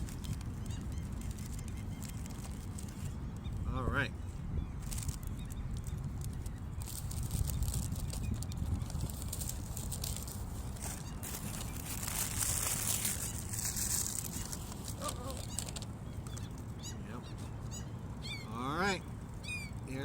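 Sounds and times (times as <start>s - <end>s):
wind rumbling on microphone: 0.0s - 20.0s
rustle: 4.8s - 16.7s.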